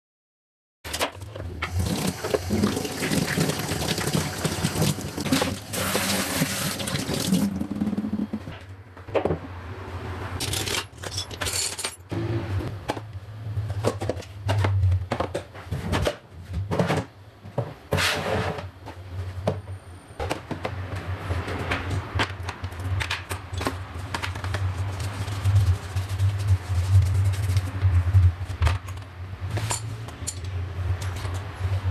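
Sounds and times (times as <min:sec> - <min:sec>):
tap running: 0:01.6 - 0:08.0.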